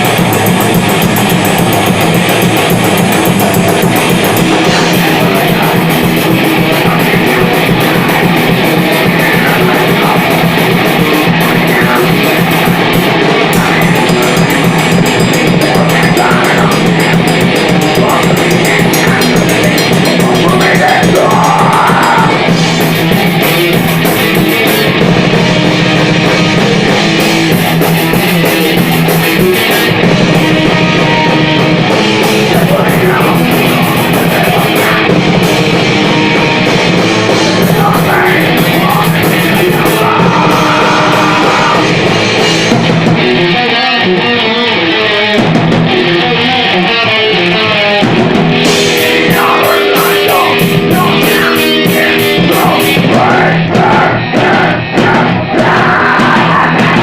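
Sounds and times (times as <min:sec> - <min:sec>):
distorted electric guitars: 0:00.0 - 0:57.0
drum kit: 0:00.0 - 0:57.0.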